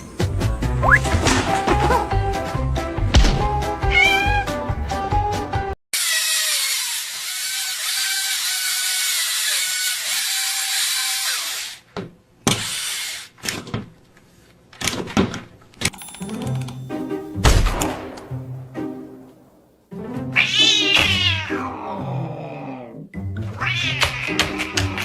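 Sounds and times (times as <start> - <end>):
power tool whirring: 6.0 - 11.8.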